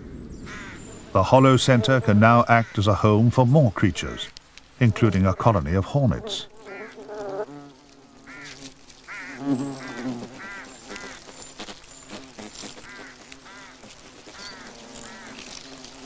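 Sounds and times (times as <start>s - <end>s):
hornets buzzing: 0.5s - 16.0s
bird short repeated calls: 8.3s - 11.4s.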